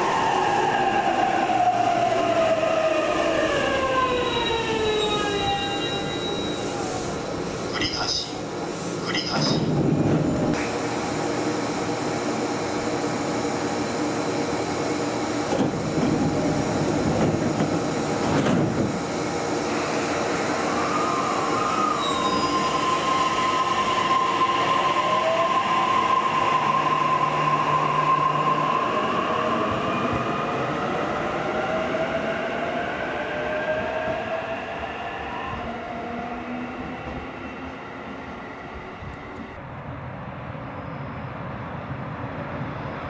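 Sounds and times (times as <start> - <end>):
train rumble with knocks: 7.7 - 10.8, 15.1 - 19.2.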